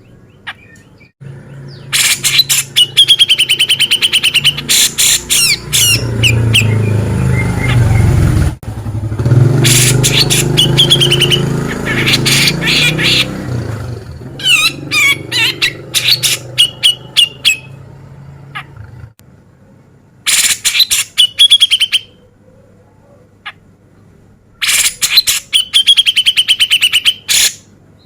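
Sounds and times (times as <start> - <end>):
bird singing harsh rapid notes: 0.0 - 8.5, 9.6 - 17.9, 20.3 - 22.2, 24.6 - 28.0
low engine hum: 0.8 - 20.2.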